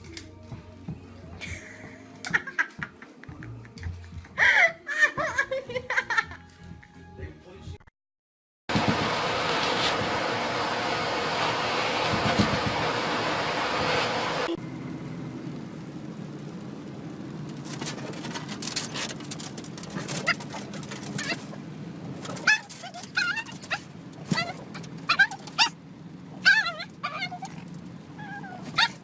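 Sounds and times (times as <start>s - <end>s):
dog whining and yipping: 20.1s - 21.6s, 22.3s - 29.0s.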